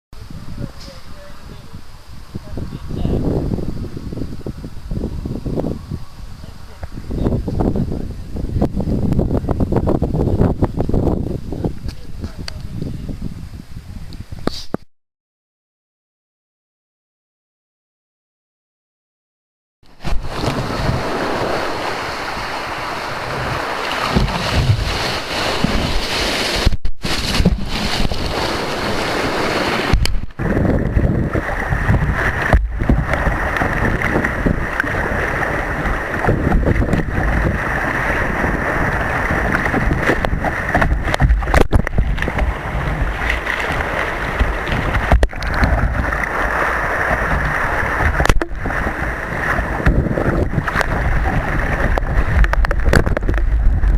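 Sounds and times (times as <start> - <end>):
wind buffeting microphone: 0.2 - 14.7, 20.0 - 53.9
breaking surf: 19.9 - 53.9.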